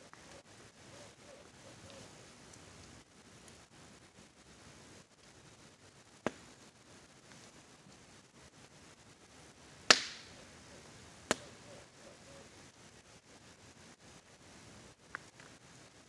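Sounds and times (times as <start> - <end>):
campfire wood crackling: 0.0 - 16.0
rain hissing: 0.0 - 16.0
sharp pops of fire: 6.1 - 7.5, 9.8 - 10.4, 11.2 - 11.6.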